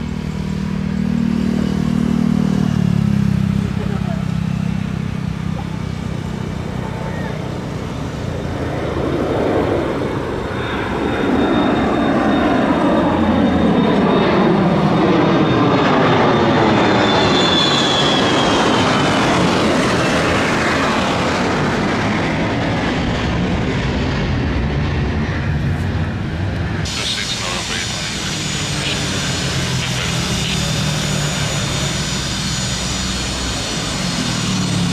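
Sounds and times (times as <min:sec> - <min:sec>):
jet aircraft passing: 0:00.0 - 0:34.9.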